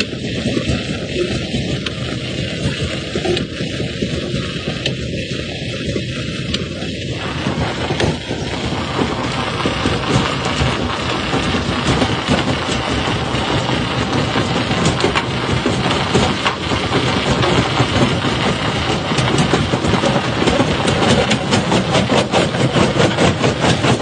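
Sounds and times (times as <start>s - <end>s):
rock crusher running: 0.0s - 24.0s.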